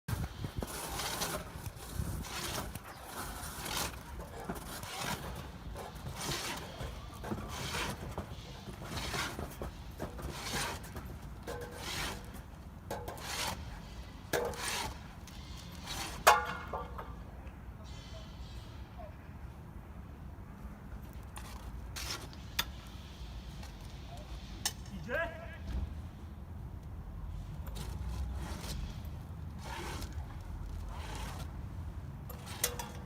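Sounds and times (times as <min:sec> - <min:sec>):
hand tool scraping: 0:00.1 - 0:17.1, 0:27.6 - 0:31.6, 0:32.3 - 0:33.0.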